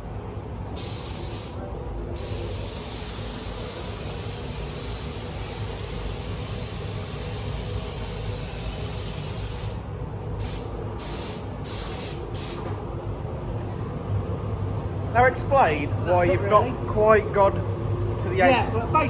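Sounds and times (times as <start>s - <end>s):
paint spray gun hissing: 0.8s - 1.6s, 2.2s - 12.6s.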